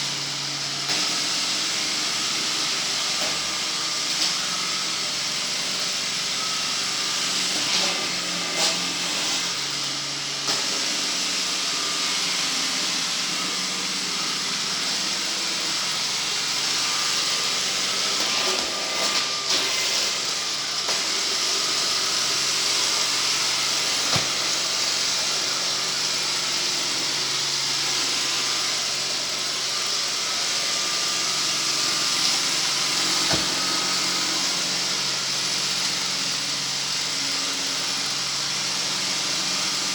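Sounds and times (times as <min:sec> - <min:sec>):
sweeping machine running: 0:00.0 - 0:39.9.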